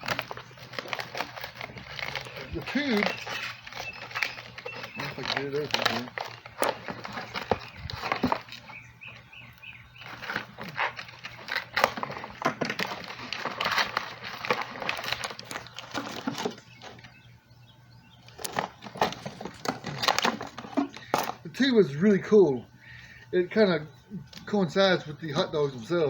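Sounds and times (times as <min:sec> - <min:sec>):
packaging crackling and tearing: 0:00.0 - 0:09.3, 0:09.9 - 0:17.1, 0:18.2 - 0:21.4.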